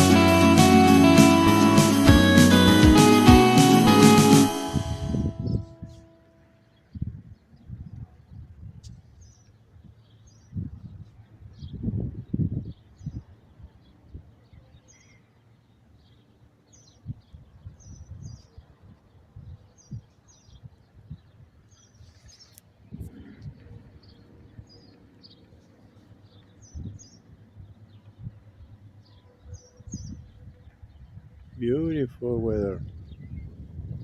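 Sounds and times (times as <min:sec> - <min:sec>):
small birds chirping: 0:19.7 - 0:31.6.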